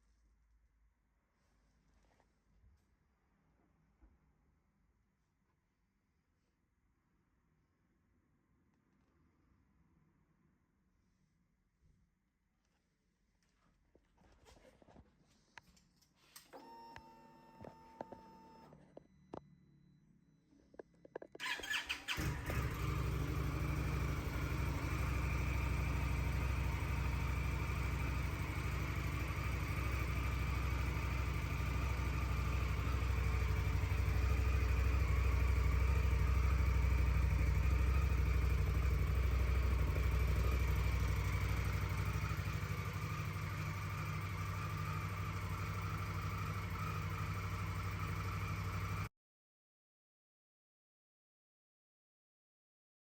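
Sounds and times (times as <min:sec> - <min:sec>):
motorcycle engine idling: 0:21.4 - 0:49.1.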